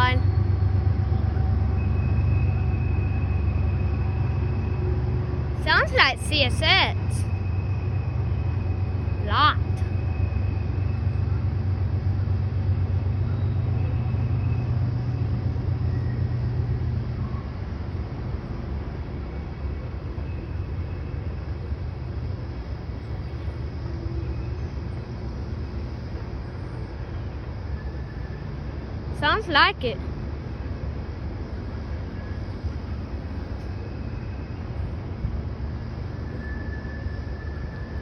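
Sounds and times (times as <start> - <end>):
freight train rumbling: 0.0 - 38.0.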